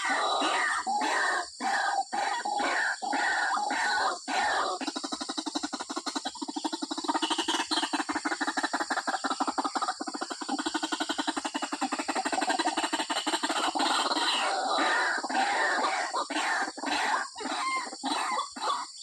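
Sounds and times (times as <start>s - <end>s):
waterhen calling: 0.0s - 1.4s.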